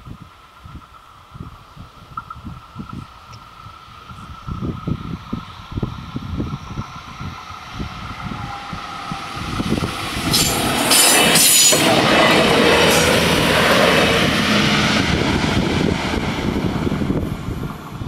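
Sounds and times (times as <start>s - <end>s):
train passing: 0.0s - 18.0s
wheels clicking over rail joints: 0.4s - 14.0s.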